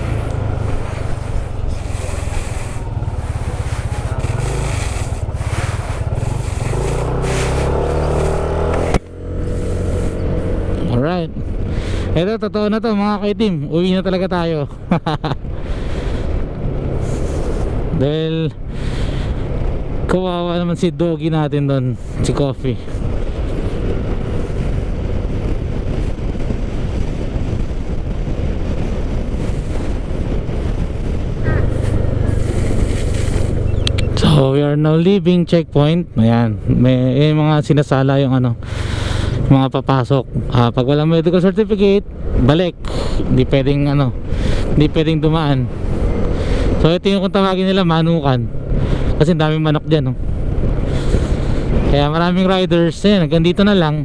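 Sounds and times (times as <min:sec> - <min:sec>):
motorcycle engine accelerating: 0:00.0 - 0:12.2, 0:22.9 - 0:35.5
motorcycle engine and road noise: 0:00.0 - 0:54.0
wind rushing over microphone: 0:00.0 - 0:54.0.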